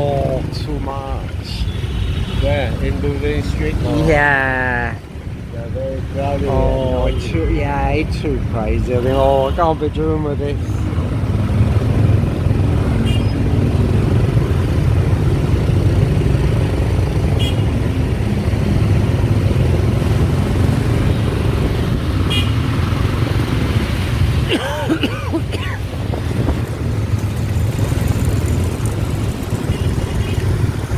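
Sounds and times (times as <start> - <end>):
wind noise: 13.6 - 30.9
horn toots: 17.4 - 17.8, 22.2 - 22.7.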